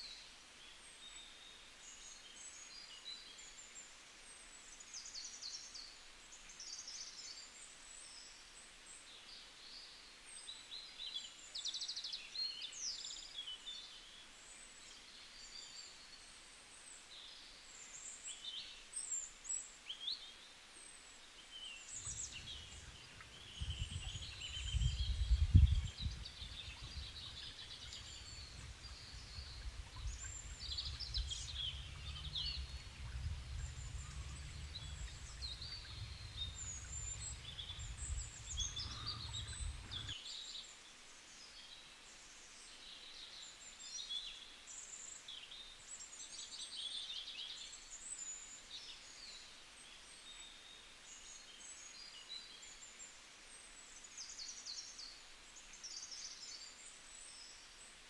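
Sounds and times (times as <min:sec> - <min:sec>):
songbirds chirping and trilling: 0:21.4 - 0:40.8
low rumble: 0:22.0 - 0:40.1.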